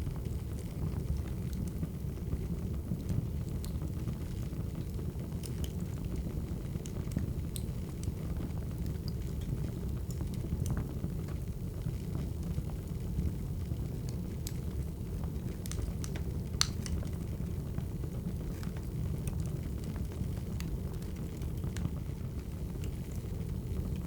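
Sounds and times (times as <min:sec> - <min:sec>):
wood fire crackling: 0:00.0 - 0:24.0
sharp pops and snaps: 0:15.4 - 0:17.2.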